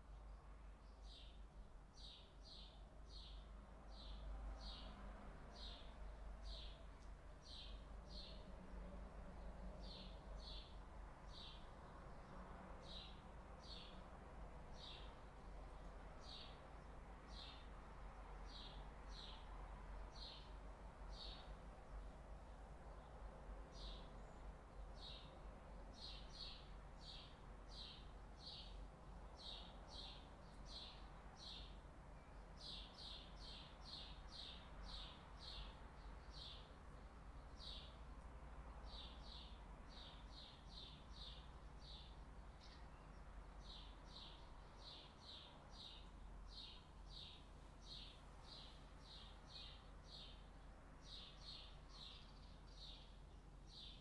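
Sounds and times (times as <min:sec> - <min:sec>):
low steady background rumble: 0:00.0 - 0:54.0
small bird chirping: 0:38.9 - 0:54.0.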